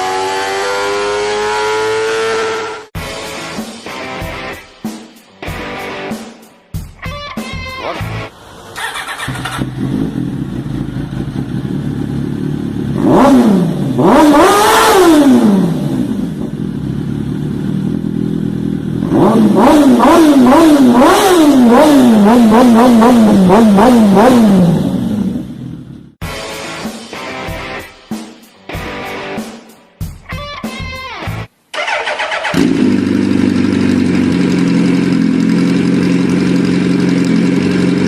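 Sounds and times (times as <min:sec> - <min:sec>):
motorcycle engine revving: 0:00.0 - 0:03.0, 0:08.8 - 0:26.2, 0:31.8 - 0:38.0.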